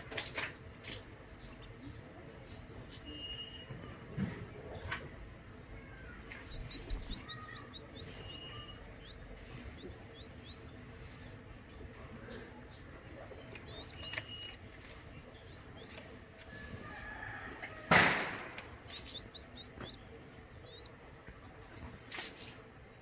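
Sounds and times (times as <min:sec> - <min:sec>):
small bird chirping: 0:00.9 - 0:02.1, 0:04.7 - 0:21.8.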